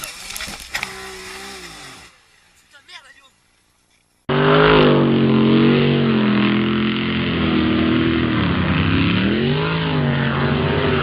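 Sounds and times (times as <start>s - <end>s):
engine running loudly: 4.3s - 11.0s.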